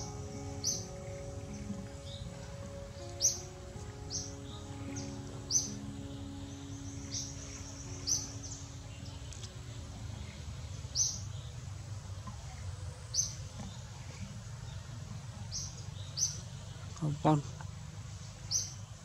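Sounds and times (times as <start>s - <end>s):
bird chirping: 0.0s - 17.5s, 18.4s - 19.0s
faint background music: 0.0s - 19.0s
low outdoor rumble: 0.0s - 19.0s.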